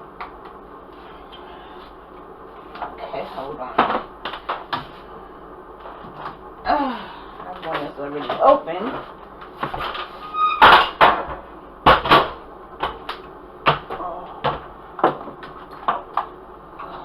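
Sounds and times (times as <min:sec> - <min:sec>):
kitchen knocks and clatters: 0:07.7 - 0:13.0
short squeak: 0:10.2 - 0:10.7.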